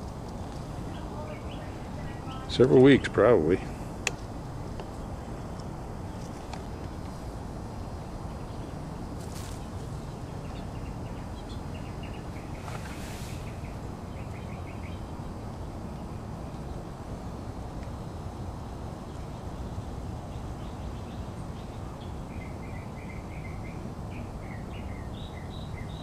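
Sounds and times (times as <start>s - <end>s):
small bird chirping: 8.2s - 15.4s
rustling: 9.1s - 10.1s, 12.5s - 13.8s.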